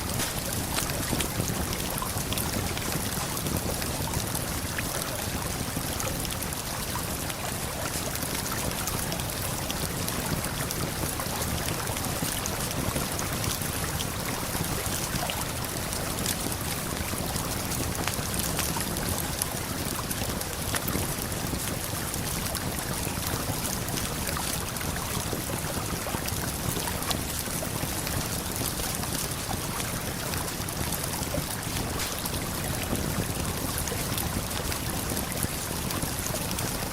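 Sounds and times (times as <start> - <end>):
campfire crackling: 0.0 - 6.6, 27.2 - 36.8
flowing river: 0.0 - 36.9.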